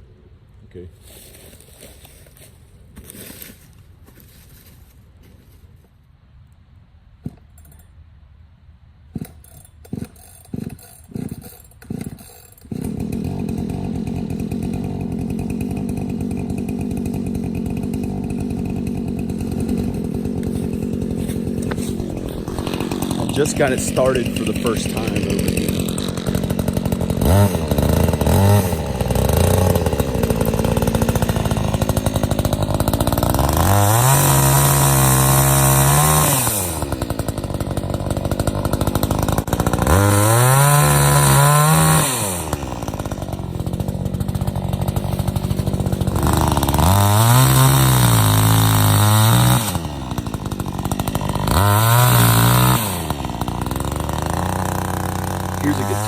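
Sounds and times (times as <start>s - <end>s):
chainsaw idling and revving: 9.1s - 56.0s.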